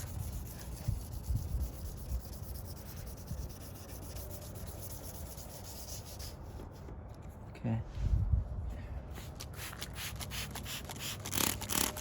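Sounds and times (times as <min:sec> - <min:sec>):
wet sanding plastic: 0:00.0 - 0:06.4.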